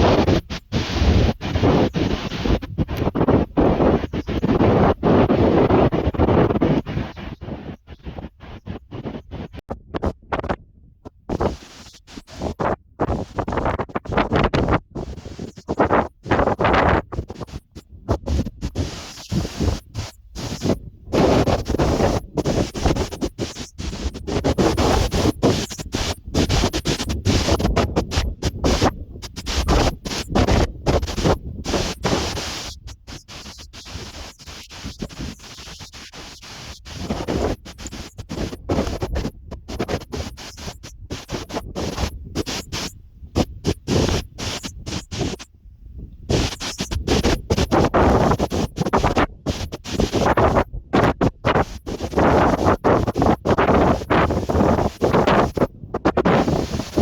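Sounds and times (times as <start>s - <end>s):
wind buffeting microphone: 12.4s - 32.8s.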